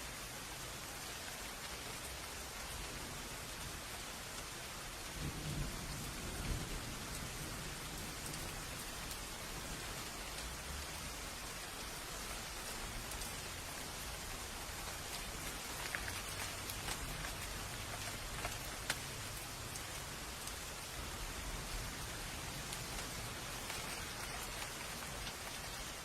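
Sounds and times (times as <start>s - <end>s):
steady rain falling: 0.0s - 26.0s
low roll of thunder: 5.1s - 10.1s.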